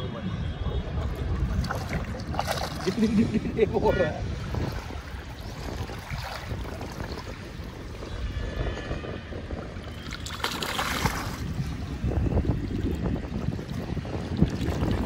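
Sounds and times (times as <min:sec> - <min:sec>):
wind rumbling on microphone: 0:00.0 - 0:15.0
small waves lapping: 0:01.0 - 0:08.0, 0:09.9 - 0:12.0.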